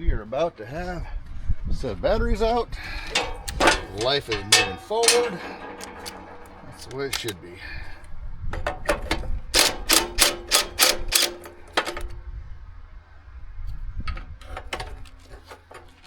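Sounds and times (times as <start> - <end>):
ratchet wrench clicking: 3.0 - 7.4, 9.6 - 12.0.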